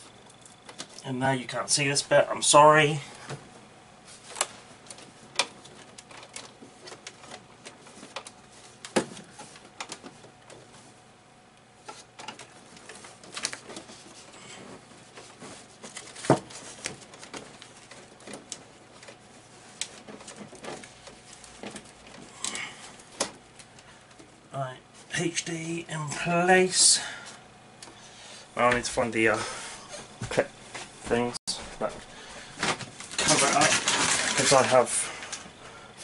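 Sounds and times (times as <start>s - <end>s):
hands handling cables: 0.1s - 1.0s, 4.1s - 10.9s, 11.6s - 24.4s, 31.8s - 35.6s.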